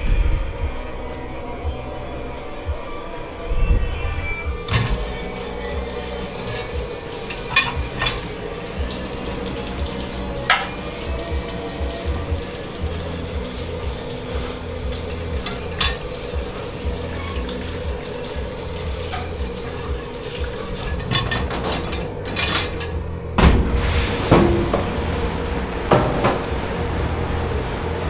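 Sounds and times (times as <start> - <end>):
equipment hum and hiss: 0.0 - 28.0
running water: 0.0 - 28.0
dishes and cutlery clinking: 4.7 - 23.2
crockery or pans knocking: 4.7 - 23.7, 24.3 - 25.1.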